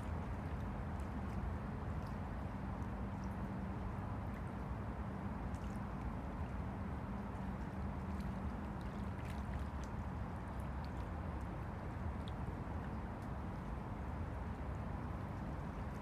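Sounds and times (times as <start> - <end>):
waves lapping against bank: 5.3 - 13.8.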